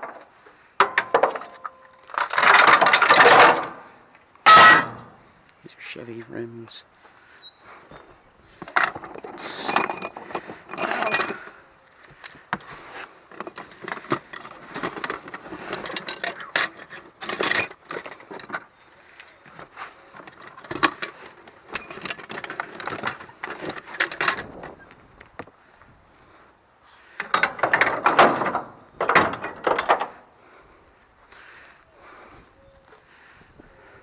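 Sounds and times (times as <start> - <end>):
scrap metal clanking: 0.8 - 5.2, 8.6 - 11.6, 12.6 - 24.7.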